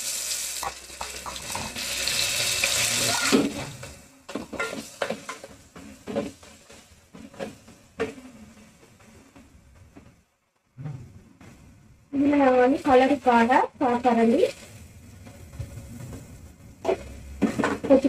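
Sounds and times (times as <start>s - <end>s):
hot oil sizzling: 0.0s - 9.2s, 12.2s - 18.0s
wooden spoon scraping pot: 14.5s - 18.0s.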